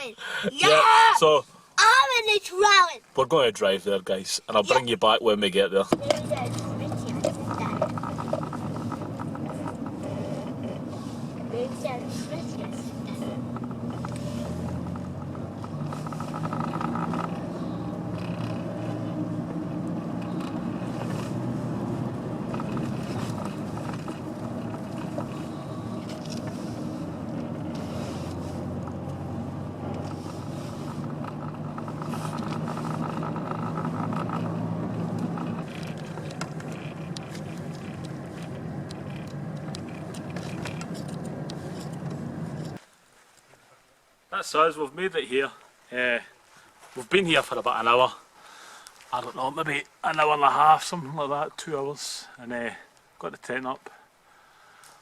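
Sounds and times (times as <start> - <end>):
car engine hum and road noise: 0.0 - 42.8.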